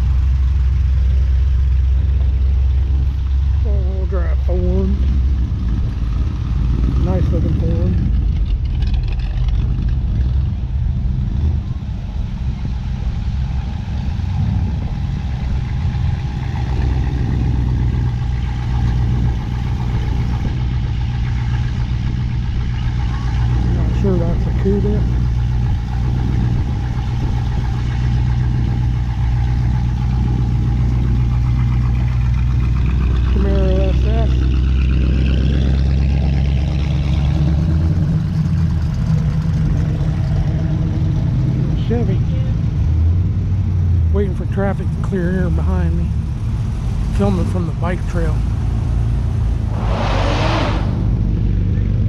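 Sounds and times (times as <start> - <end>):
cars and trucks driving past: 0.0 - 52.0
car engine driving past: 46.0 - 52.0.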